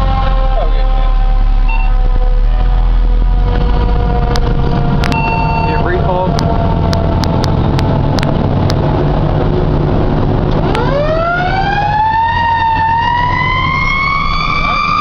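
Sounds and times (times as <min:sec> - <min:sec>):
siren wailing: 0:00.0 - 0:08.6, 0:10.6 - 0:15.0
fire engine running: 0:00.0 - 0:15.0.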